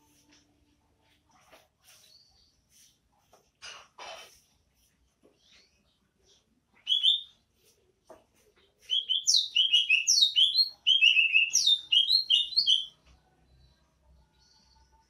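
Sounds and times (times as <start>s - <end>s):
bird singing: 5.4s - 7.4s, 8.9s - 15.0s.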